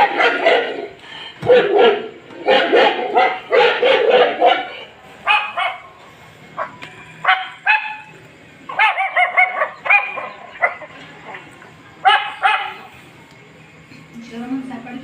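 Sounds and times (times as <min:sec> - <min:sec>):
small dog yapping: 0:00.0 - 0:05.9, 0:06.6 - 0:08.1, 0:08.7 - 0:10.9, 0:12.0 - 0:12.9.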